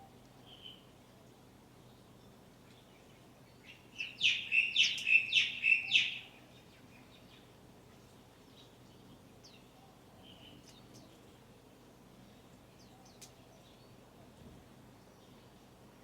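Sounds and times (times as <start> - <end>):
songbird chirping sharply: 2.7 - 7.5.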